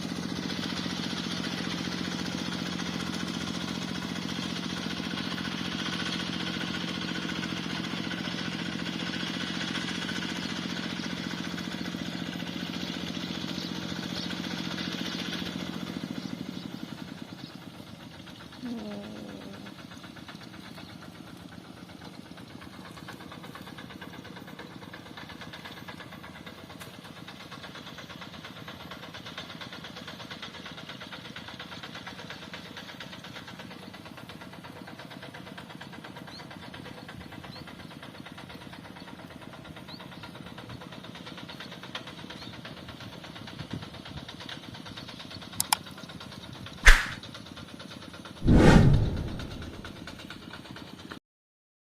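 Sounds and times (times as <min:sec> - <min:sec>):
tractor engine running: 0:00.0 - 0:48.0, 0:48.8 - 0:50.9
loud thump: 0:46.8 - 0:47.2, 0:48.4 - 0:49.9
sharp knock: 0:46.8 - 0:47.2, 0:48.4 - 0:49.9.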